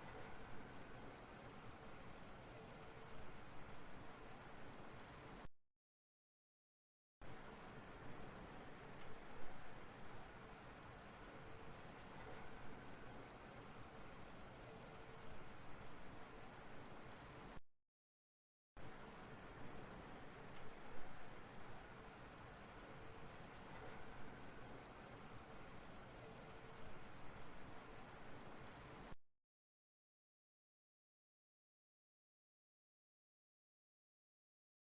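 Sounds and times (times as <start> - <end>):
insect chirring: 18.8 - 29.2.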